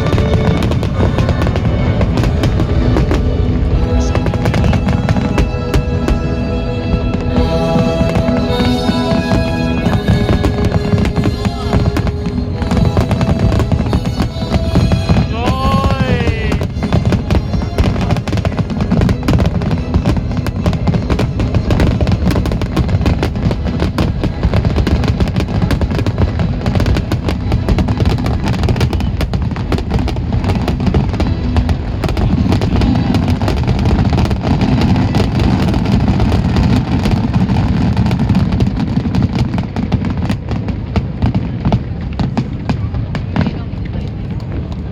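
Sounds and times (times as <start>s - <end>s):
fireworks booming and crackling: 0.0s - 44.9s.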